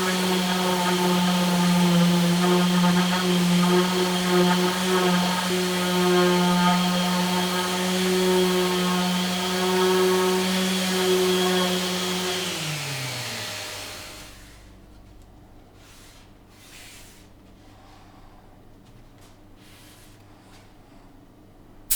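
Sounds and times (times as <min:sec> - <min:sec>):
power tool motor spinning down: 0:00.0 - 0:14.6.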